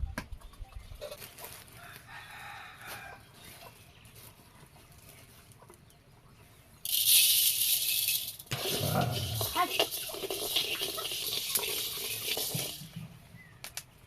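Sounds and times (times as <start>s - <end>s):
rooster crowing: 1.8s - 3.2s.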